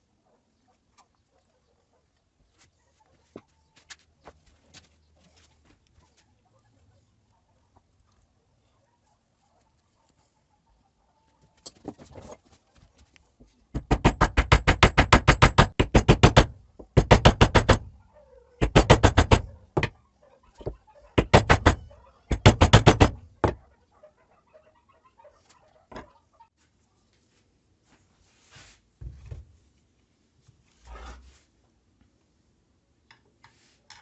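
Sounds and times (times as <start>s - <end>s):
workshop tool knocking rapidly: 13.8s - 17.9s, 18.6s - 19.9s, 21.2s - 23.6s.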